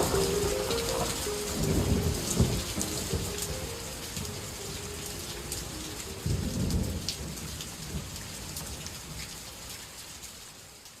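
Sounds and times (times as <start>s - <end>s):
thunder rolling: 0.0s - 4.8s
steady rain: 0.0s - 11.0s.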